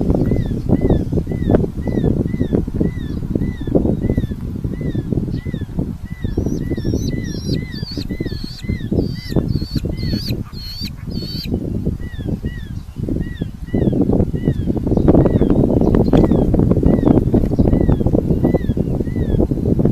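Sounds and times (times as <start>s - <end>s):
harsh high bird calls: 0.2s - 12.6s
falcon nestlings calling: 0.3s - 12.6s.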